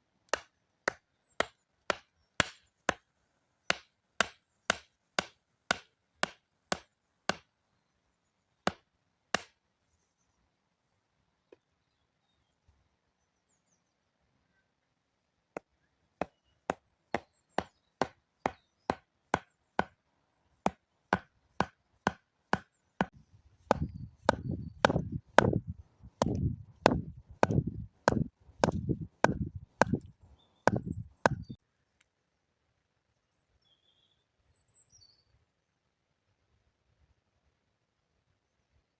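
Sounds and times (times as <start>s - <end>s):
blade chopping wood: 0.3s - 3.0s, 3.7s - 7.5s, 9.4s - 9.6s, 15.6s - 20.0s, 20.6s - 25.6s, 26.2s - 31.5s.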